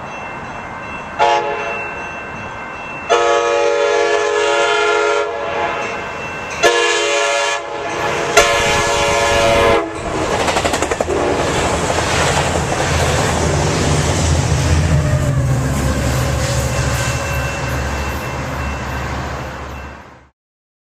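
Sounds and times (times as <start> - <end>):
diesel locomotive drone: 0.0 - 20.3
train air horn blasts: 1.2 - 1.8, 3.1 - 6.0, 6.6 - 10.0
train wheels clattering on rails: 8.0 - 19.1.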